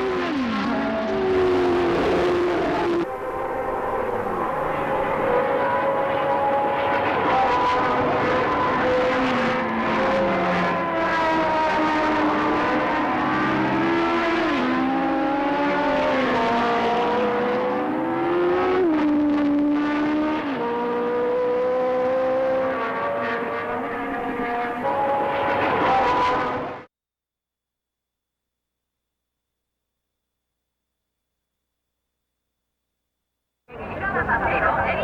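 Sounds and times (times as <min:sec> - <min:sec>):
racing engines at high revs: 0:00.0 - 0:26.9.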